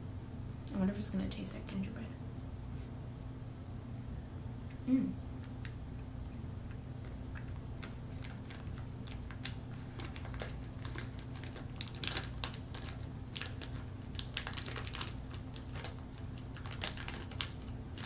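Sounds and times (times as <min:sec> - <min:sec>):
steady low hum: 0:00.0 - 0:18.0
wet mouth clicks and smacks: 0:05.4 - 0:08.0.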